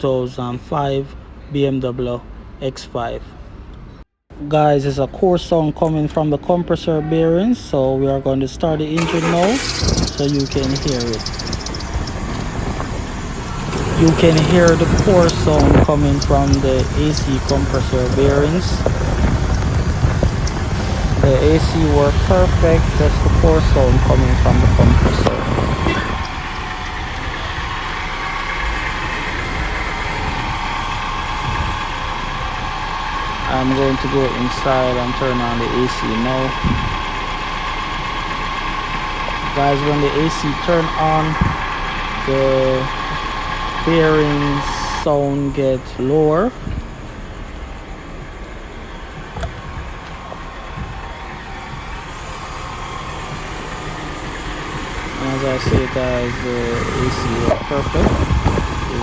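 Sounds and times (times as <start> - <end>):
bearing noise: 9.0 - 31.8
worn compressor bearing noise: 9.0 - 45.1, 46.6 - 59.0
car engine idling: 9.0 - 59.0.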